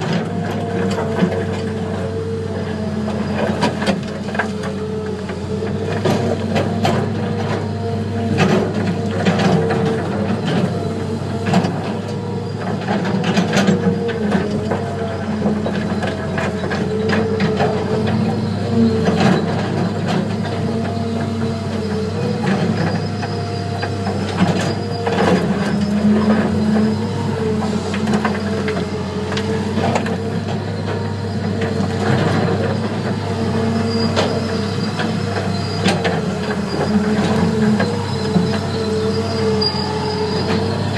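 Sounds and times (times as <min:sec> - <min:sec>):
diesel engines running under load: 0:00.0 - 0:40.9
clanks and knocks of digging: 0:08.3 - 0:33.2.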